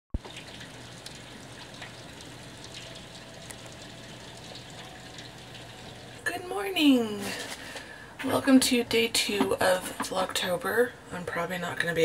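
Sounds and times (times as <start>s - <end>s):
light ticks of drops: 0.2s - 6.1s.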